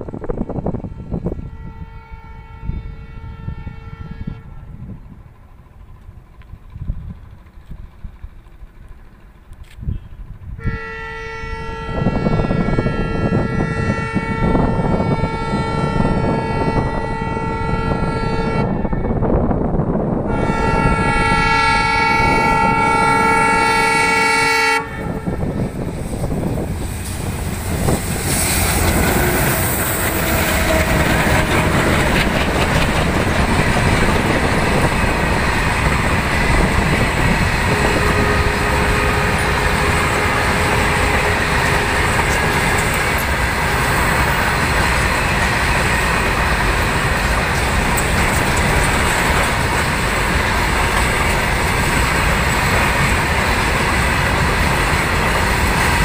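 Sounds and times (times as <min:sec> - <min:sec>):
locomotive horn blasts: 0:00.8 - 0:04.8, 0:09.8 - 0:19.5, 0:20.2 - 0:26.7, 0:28.6 - 0:32.7, 0:34.2 - 0:44.8
wheels clattering on rail: 0:25.0 - 0:56.0.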